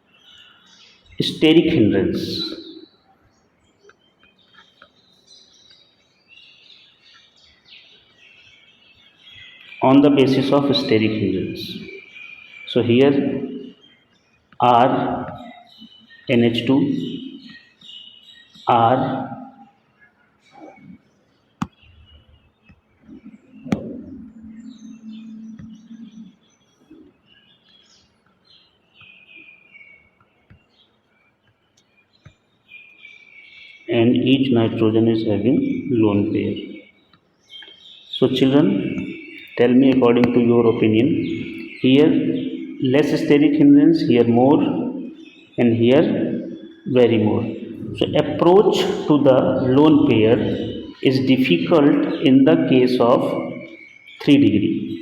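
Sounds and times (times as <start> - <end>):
faint birds chirping: 0.0 - 55.0.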